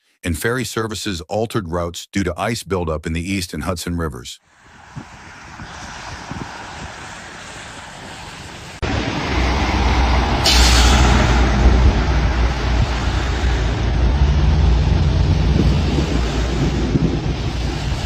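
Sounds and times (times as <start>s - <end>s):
traffic hum: 0.3s - 18.0s
loud engine rumble: 8.8s - 18.0s
short hiss: 10.4s - 11.1s.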